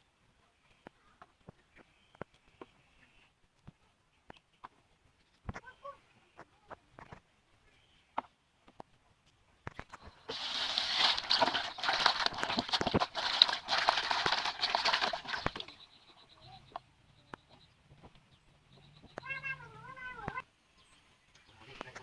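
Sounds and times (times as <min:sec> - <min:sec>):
food sizzling in hot oil: 0:10.3 - 0:15.4.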